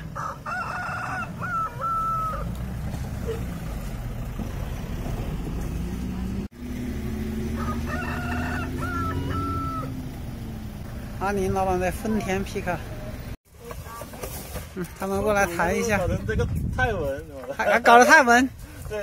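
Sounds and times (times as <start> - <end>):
rooster crowing: 0.0 - 2.5, 7.4 - 10.0.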